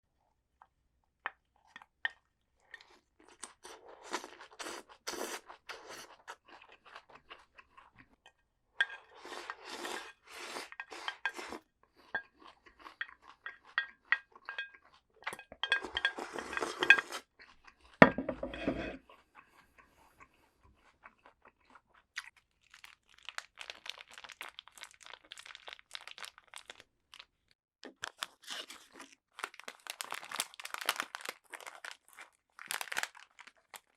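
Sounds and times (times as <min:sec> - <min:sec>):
crunching raw vegetables: 0:21.0 - 0:33.9.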